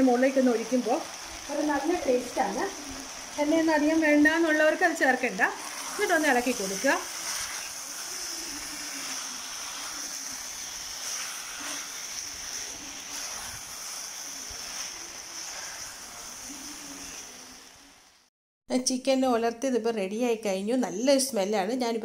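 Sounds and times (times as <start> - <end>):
chicken sizzling in hot oil: 0.0 - 18.3
wooden spatula stirring: 2.0 - 17.4.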